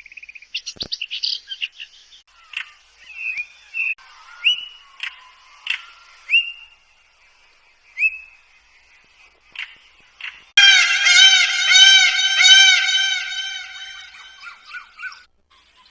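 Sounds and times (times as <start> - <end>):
bird chips: 9.6 - 15.2
birds whistling: 10.6 - 15.3.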